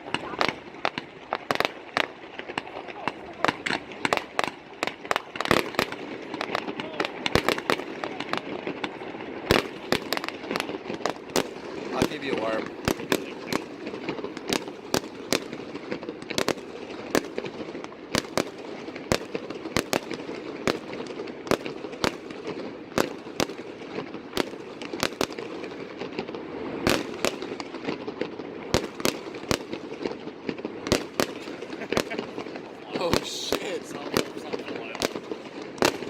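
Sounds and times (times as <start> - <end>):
fireworks bangs: 0.0 - 36.0
steady background noise: 27.8 - 36.0.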